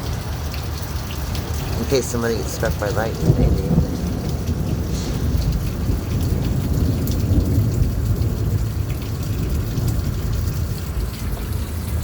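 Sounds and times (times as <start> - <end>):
rain falling: 0.0 - 12.0
raindrops ticking: 0.0 - 12.0
rumble of thunder: 2.8 - 12.0.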